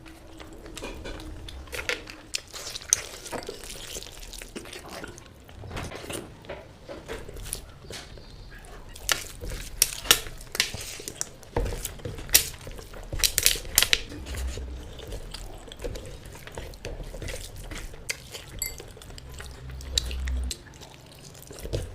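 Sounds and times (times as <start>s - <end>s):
chewing: 0.0s - 21.9s
food and plate clinks: 18.4s - 20.2s.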